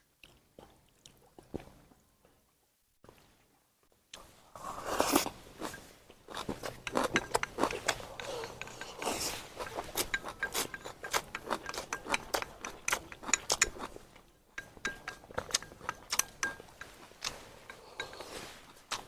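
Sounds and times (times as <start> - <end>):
utensils clinking against dishes: 5.7 - 13.9, 14.6 - 18.5.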